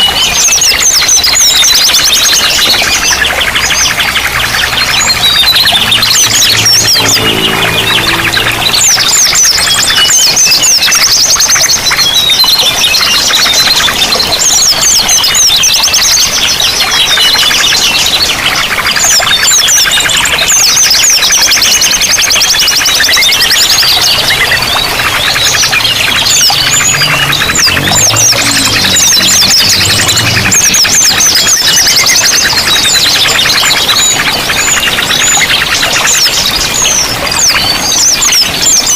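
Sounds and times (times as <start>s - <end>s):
songbirds chirping chorus: 0.0s - 38.9s
low steady drone: 1.8s - 11.6s, 19.9s - 37.0s.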